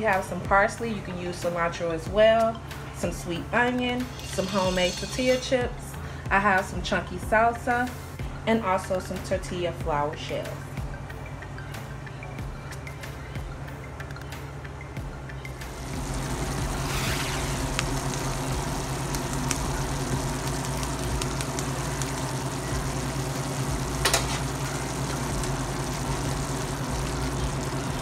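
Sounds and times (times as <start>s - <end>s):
meat sizzling in a frying pan: 15.7s - 28.0s.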